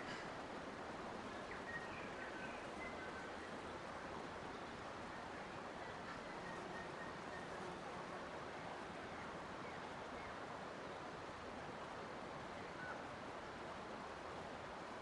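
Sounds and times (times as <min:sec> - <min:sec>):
faint bird chirp: 0:01.2 - 0:11.1, 0:12.4 - 0:13.1.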